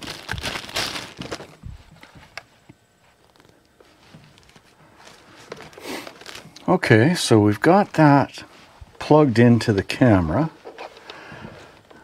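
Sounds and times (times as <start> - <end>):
plastic bag crinkling: 0.0 - 1.7, 4.3 - 6.8.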